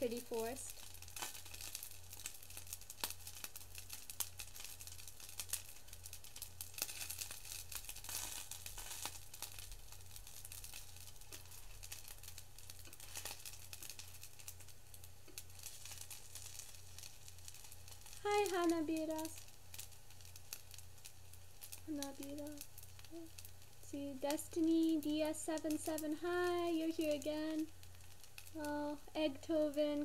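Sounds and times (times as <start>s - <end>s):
food frying with crackle and pops: 0.0s - 30.0s
low steady hum: 0.0s - 30.0s.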